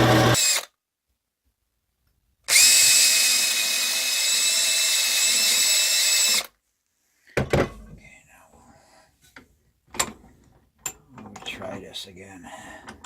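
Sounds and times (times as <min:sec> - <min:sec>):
rotary tool whining carving wood: 0:00.0 - 0:00.7, 0:02.5 - 0:06.5.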